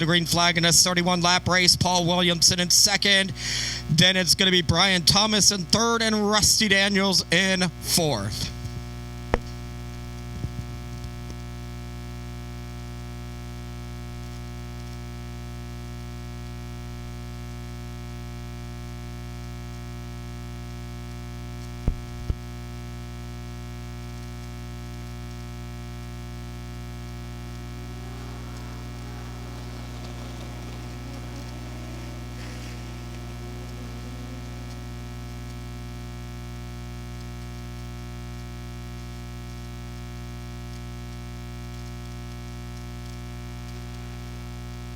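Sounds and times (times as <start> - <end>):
electrical mains hum: 23.5 - 44.9
faint indistinct sounds: 27.8 - 35.4.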